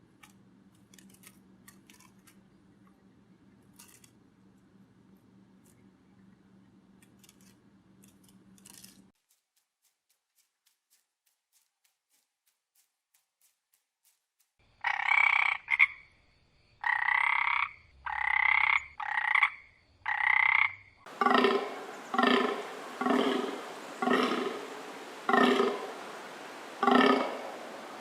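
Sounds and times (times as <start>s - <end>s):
deeper animal call: 21.1s - 28.0s
short animal calls: 21.1s - 28.0s.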